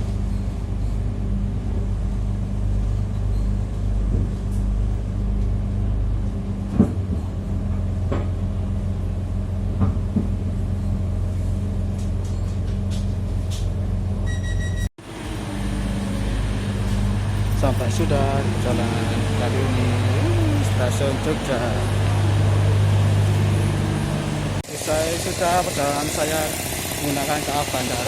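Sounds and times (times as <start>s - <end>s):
train rumbling: 0.0s - 14.3s, 15.0s - 28.0s
short electronic tone: 14.2s - 14.9s.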